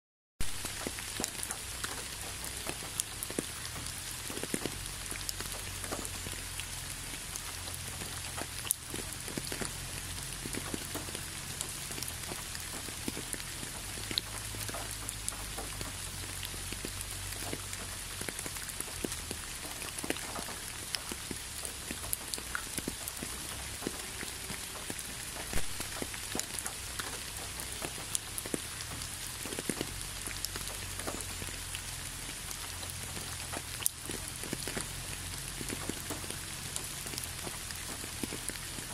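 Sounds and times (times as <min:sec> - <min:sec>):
raindrops ticking: 0:00.4 - 0:38.9
steady rain: 0:00.4 - 0:38.9.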